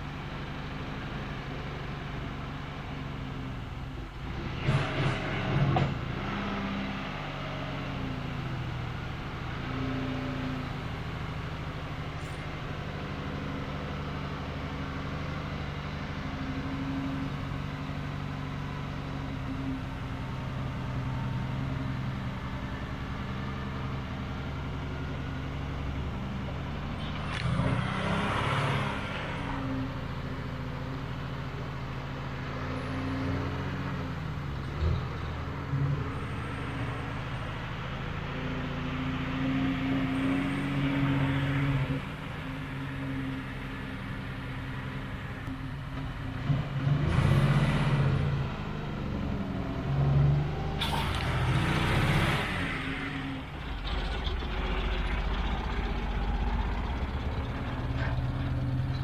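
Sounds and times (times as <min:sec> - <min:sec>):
truck engine running: 0:00.0 - 0:59.0
brief rush of noise: 0:50.8 - 0:51.7.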